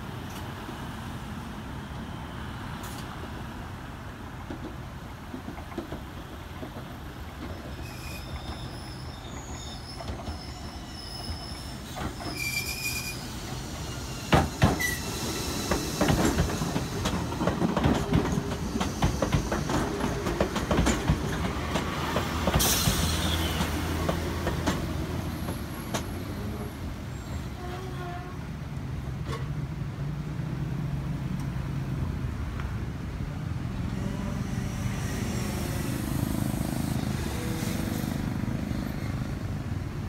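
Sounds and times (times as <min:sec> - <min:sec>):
high wheel squeal: 0:07.6 - 0:17.1, 0:22.6 - 0:23.9
train wheels clacking over joints: 0:13.4 - 0:26.5.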